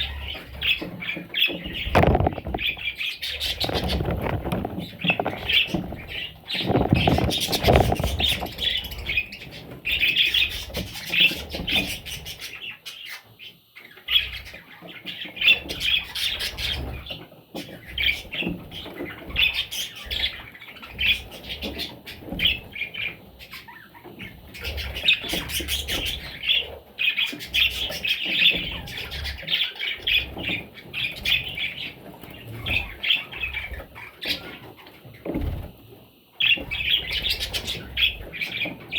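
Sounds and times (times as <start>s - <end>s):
budgerigars chirping: 0.0s - 34.9s, 36.4s - 38.9s
low knocks and rustles: 1.7s - 9.3s.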